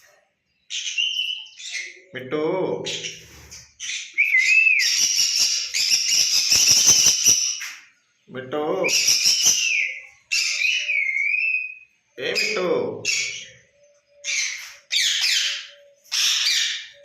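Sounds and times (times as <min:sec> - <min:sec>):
parrot screeching: 0:03.8 - 0:07.6, 0:09.0 - 0:11.8, 0:14.2 - 0:17.0
parrot whistling: 0:04.0 - 0:07.4, 0:08.9 - 0:11.8.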